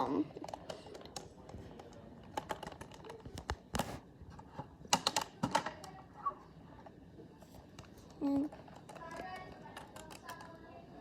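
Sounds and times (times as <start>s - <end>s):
plastic toys clicking on hard surface: 0.4s - 3.7s, 4.9s - 6.0s, 8.1s - 10.6s.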